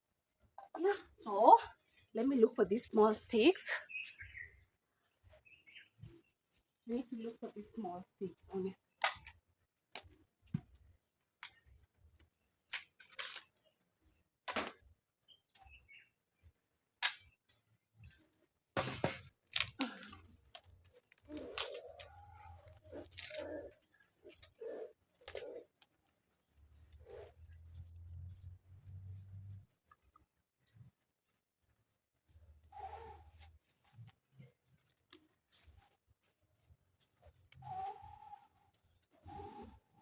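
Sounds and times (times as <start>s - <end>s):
dry sticks snapping: 19.4s - 26.0s.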